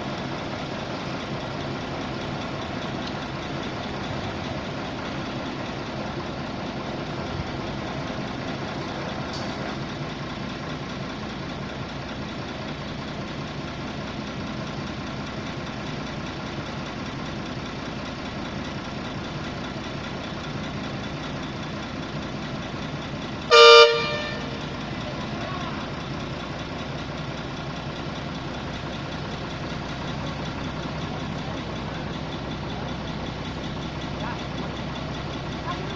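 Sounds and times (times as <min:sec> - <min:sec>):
loud horn blast: 0:23.5 - 0:24.6.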